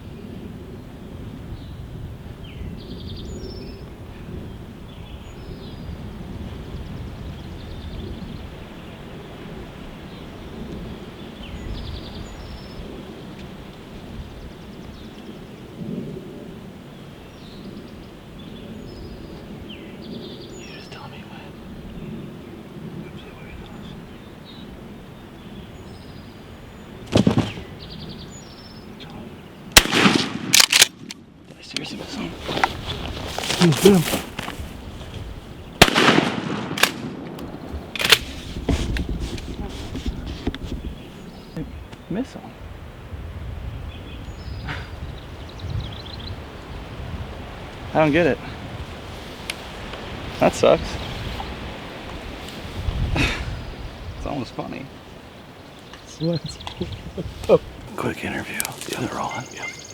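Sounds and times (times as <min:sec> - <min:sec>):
wind buffeting microphone: 0:00.0 - 0:59.9
small birds chirping: 0:17.0 - 0:29.8, 0:31.5 - 0:35.9, 0:38.5 - 0:42.6, 0:43.6 - 0:59.9.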